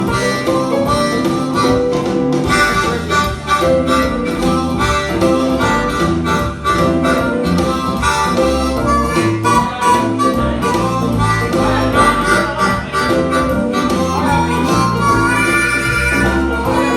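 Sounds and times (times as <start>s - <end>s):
blues harmonica music: 0.0s - 16.9s.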